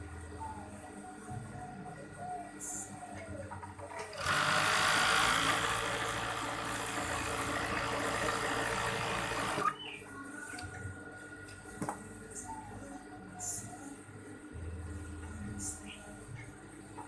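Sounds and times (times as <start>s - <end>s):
sewing machine running: 4.1s - 9.7s.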